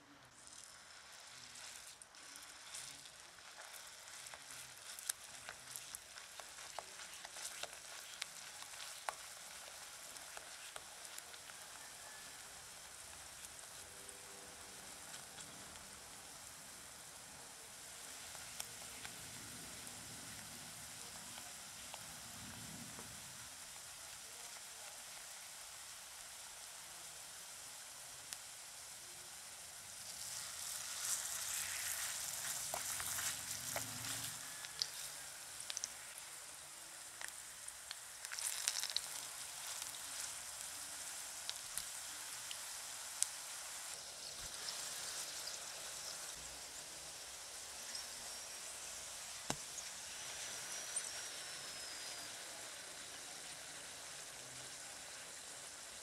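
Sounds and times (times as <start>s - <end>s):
batter sizzling in hot oil: 0.0s - 56.0s
oil spattering crackles: 0.4s - 13.9s, 29.9s - 46.4s.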